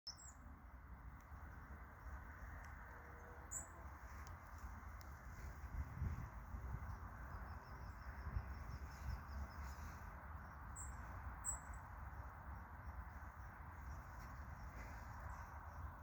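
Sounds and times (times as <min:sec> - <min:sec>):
steady low rumble: 0:00.2 - 0:16.0
high bird chirps: 0:06.7 - 0:12.3.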